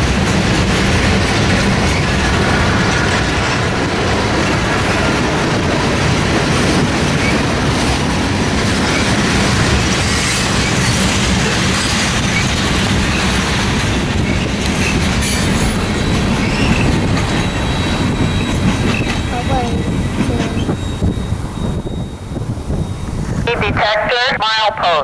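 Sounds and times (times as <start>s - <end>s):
freight train wheels rumbling: 0.0s - 24.7s
faint wheel squeals: 16.1s - 23.2s.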